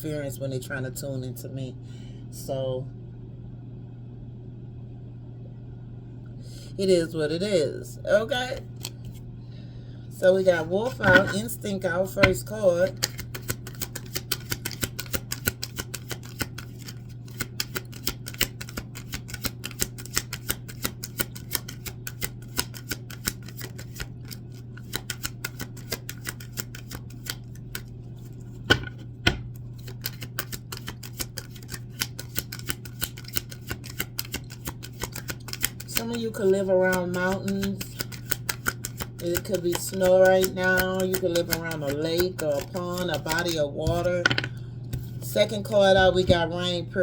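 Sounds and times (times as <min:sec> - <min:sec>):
steady low hum: 0:00.0 - 0:47.0
cards being shuffled: 0:10.5 - 0:11.5, 0:12.2 - 0:46.4.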